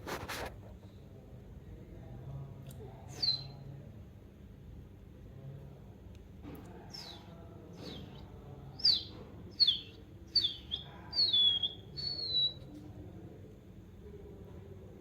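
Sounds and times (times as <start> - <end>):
budgerigar whistled chirps: 3.2 - 3.6, 8.8 - 12.6.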